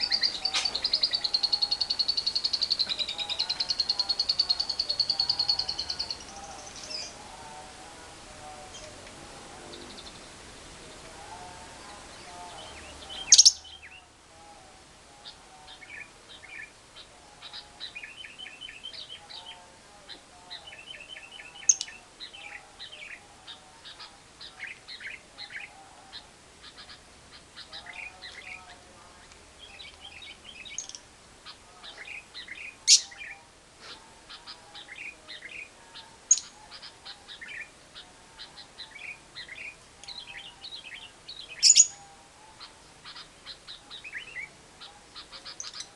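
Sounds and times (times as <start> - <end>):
shrill bird calls: 0.0 - 7.1
low bird twittering: 0.0 - 7.2
lovebird chirping song: 0.0 - 7.6, 8.4 - 14.1, 15.1 - 45.9.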